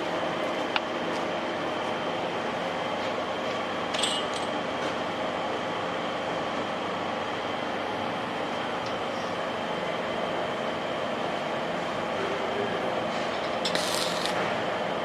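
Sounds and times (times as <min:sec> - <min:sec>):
metallic clink: 0:04.0 - 0:04.5.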